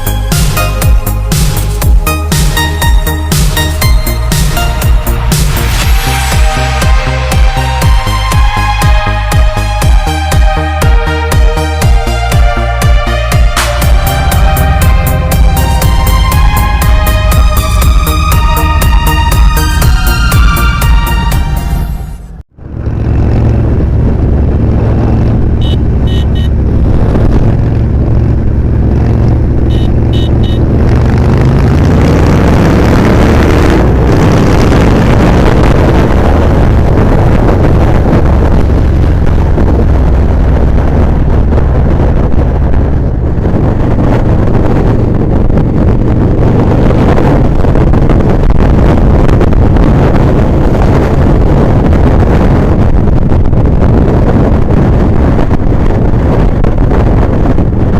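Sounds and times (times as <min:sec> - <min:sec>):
wind noise on microphone: 0:00.0 - 0:57.9
motorcycle engine running: 0:22.5 - 0:57.9.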